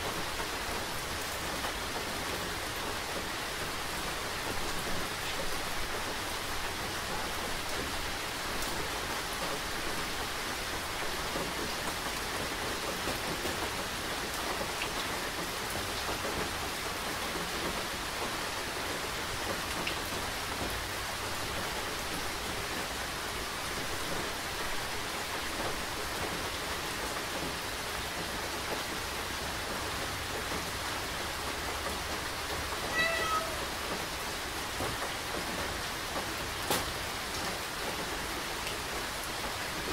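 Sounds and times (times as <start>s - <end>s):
rain falling: 0.0s - 39.9s
cat meowing: 32.9s - 33.7s.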